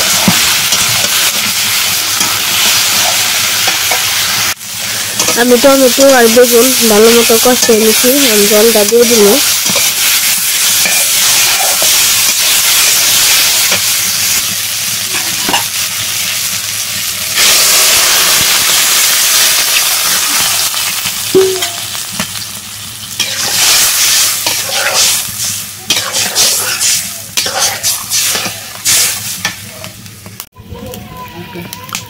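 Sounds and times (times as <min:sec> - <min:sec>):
spatula scraping a wok: 0:00.0 - 0:14.4, 0:15.0 - 0:16.1, 0:23.1 - 0:29.6
vegetables sizzling in hot oil: 0:00.0 - 0:30.5.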